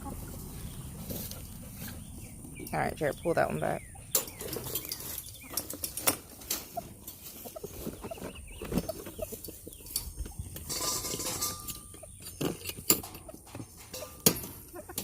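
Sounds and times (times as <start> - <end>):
chickens clucking and peeping: 0.0 - 15.0
clicks and knocks in cage: 4.1 - 15.0.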